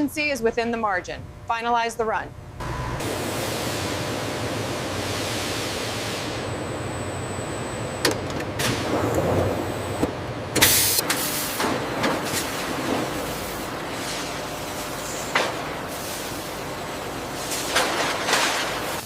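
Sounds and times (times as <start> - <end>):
steady mechanical noise: 0.0 - 19.0.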